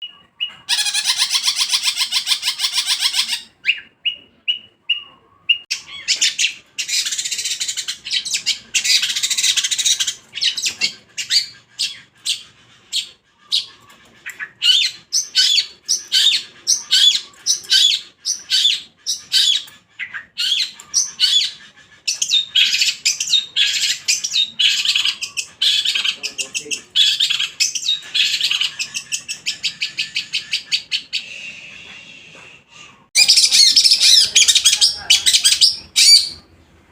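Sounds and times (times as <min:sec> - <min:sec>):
shrike singing: 0:00.0 - 0:05.7.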